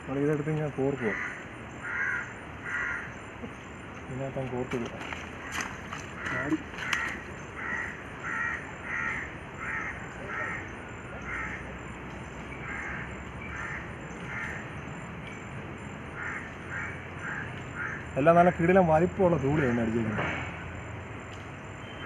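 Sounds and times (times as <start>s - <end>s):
crow cawing: 0.9s - 3.2s, 5.3s - 11.8s, 12.6s - 14.8s, 16.1s - 18.2s.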